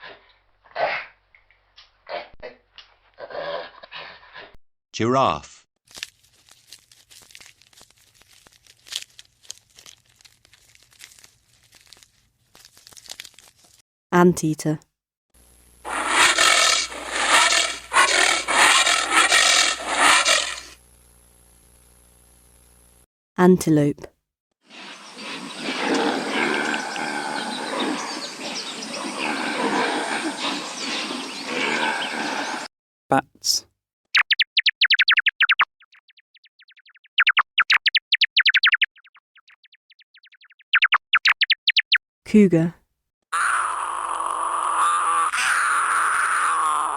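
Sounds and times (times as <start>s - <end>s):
anteater hoarse breathy bursts: 15.9s - 20.8s
bat calls: 15.9s - 20.8s, 24.7s - 32.7s, 43.4s - 46.9s.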